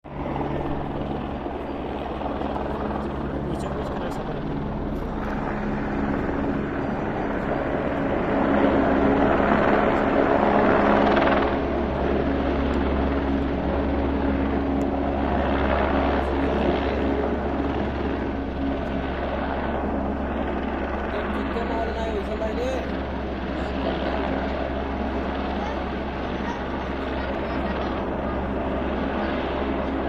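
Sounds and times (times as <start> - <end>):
helicopter rotor and turbine: 0.0 - 30.0.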